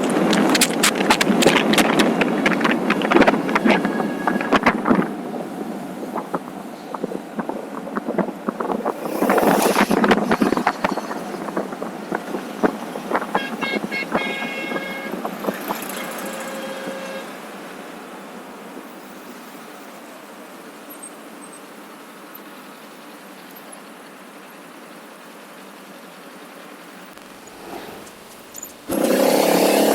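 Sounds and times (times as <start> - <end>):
scattered clicks and knocks: 0.0 - 5.1
road traffic noise: 0.0 - 29.9
rush of noise: 8.6 - 11.8, 27.1 - 29.9.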